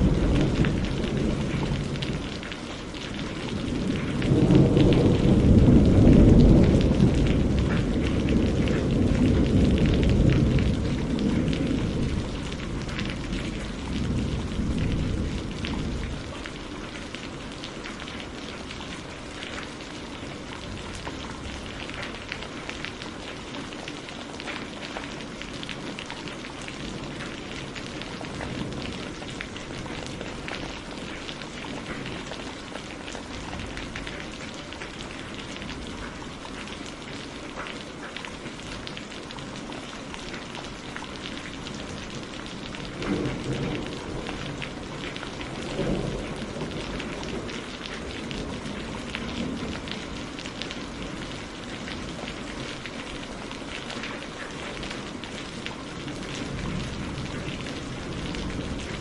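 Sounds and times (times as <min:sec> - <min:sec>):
low thunder rumble: 0:00.0 - 0:17.5, 0:41.9 - 0:52.8
heavy rain falling: 0:00.0 - 0:59.0.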